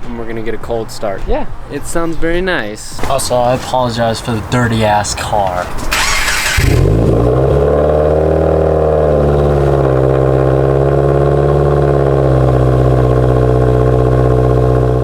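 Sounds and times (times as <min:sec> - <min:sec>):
car engine idling: 0:03.1 - 0:15.0.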